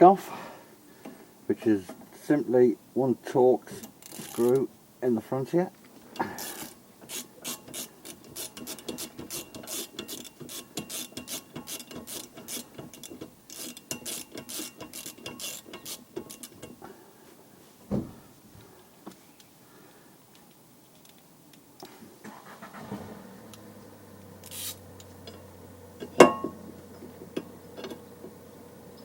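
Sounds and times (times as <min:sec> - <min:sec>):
ratchet wrench clicking: 0:03.9 - 0:04.6, 0:06.4 - 0:16.8, 0:24.4 - 0:25.4.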